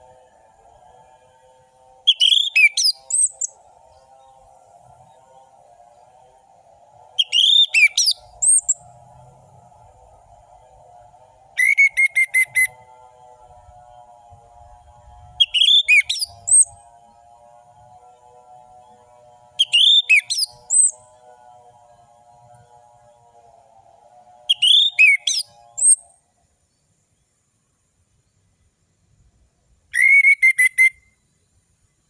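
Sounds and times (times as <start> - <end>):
faint low hum: 0.0 - 30.0
thrush singing whistled phrases: 2.0 - 3.7, 7.0 - 8.9, 11.5 - 12.9, 15.2 - 16.8, 19.6 - 21.0, 24.5 - 26.1, 29.9 - 31.1.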